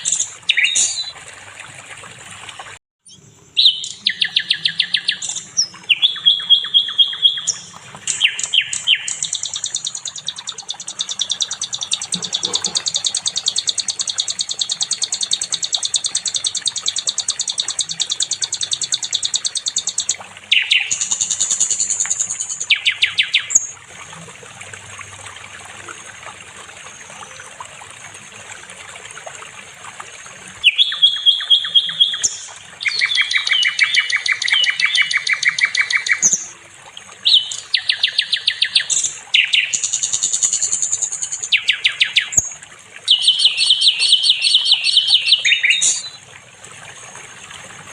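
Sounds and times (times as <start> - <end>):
songbird fast trills: 0.0 - 1.1, 3.1 - 23.8, 30.6 - 36.5, 37.2 - 46.2
thin high steady bird whistle: 3.1 - 23.8, 30.6 - 36.5, 37.3 - 46.2.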